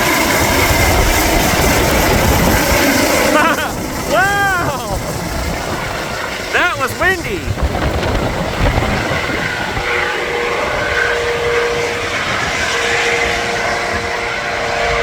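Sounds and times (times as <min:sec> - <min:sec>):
helicopter drone: 0:00.0 - 0:15.0
wind rumbling on microphone: 0:00.3 - 0:04.1, 0:04.9 - 0:14.1.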